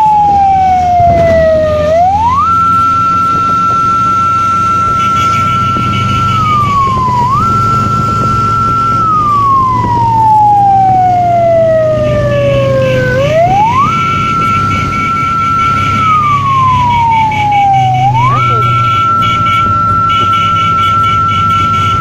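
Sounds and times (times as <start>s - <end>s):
wailing siren-like tone: 0.0s - 22.0s.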